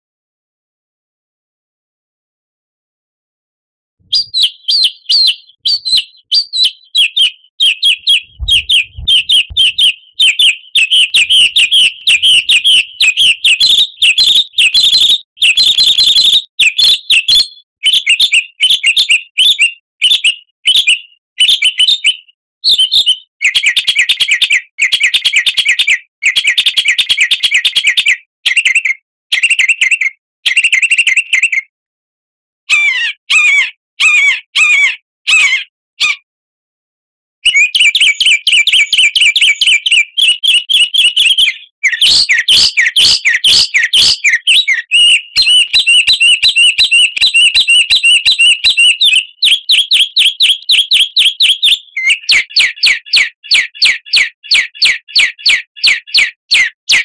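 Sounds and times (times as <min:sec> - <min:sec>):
songbird chirps and trills: 0:04.1 - 0:17.7, 0:37.5 - 0:54.2
low thumps: 0:08.1 - 0:09.9.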